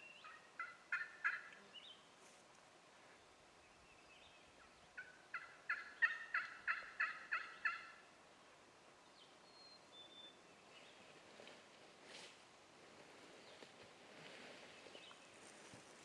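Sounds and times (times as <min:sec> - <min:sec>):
turkey yelping: 0:00.2 - 0:01.5, 0:05.0 - 0:08.0.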